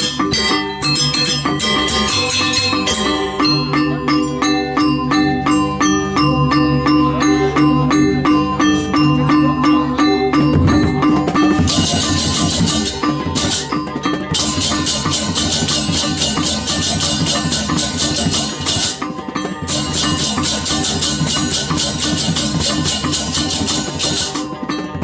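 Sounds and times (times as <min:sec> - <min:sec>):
gong-chime notes: 0:00.0 - 0:25.0
drums: 0:10.1 - 0:25.0
small cymbals clashing: 0:10.8 - 0:24.6.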